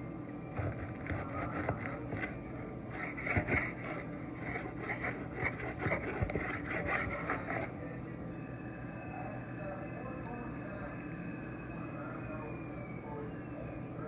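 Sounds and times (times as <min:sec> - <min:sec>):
knife slicing tomato on board: 0:00.6 - 0:02.3, 0:03.0 - 0:07.6.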